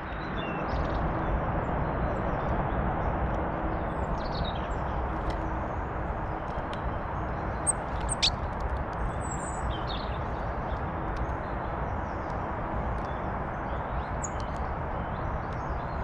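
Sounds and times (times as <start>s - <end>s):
small birds chirping: 6.4s - 16.0s.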